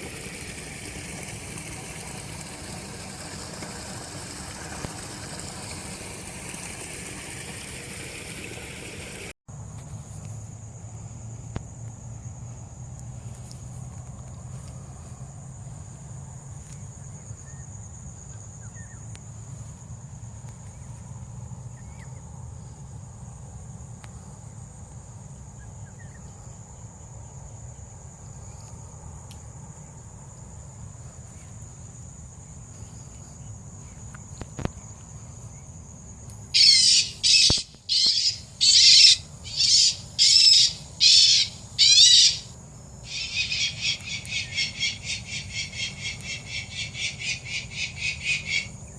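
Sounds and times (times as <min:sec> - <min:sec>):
faint high chirp: 0:10.6 - 0:12.0, 0:16.7 - 0:19.3, 0:21.7 - 0:23.0, 0:25.4 - 0:26.6, 0:28.6 - 0:30.3, 0:32.7 - 0:34.0
harsh bird calls: 0:36.6 - 0:48.9.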